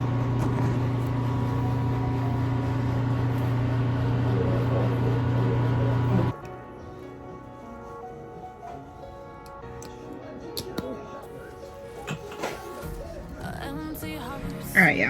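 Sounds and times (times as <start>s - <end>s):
low mechanical hum with rumbling: 0.0s - 6.3s.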